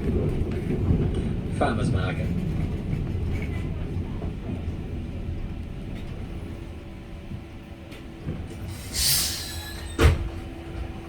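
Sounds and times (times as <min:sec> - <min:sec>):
tram rumbling: 0:00.0 - 0:11.0
hiss of air: 0:08.7 - 0:09.8.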